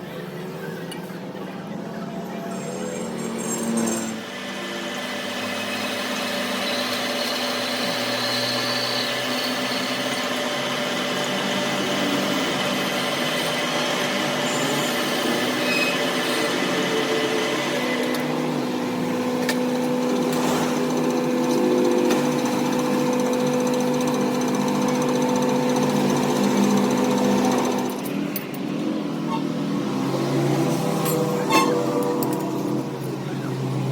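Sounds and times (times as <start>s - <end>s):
power tool motor running: 2.8s - 28.4s.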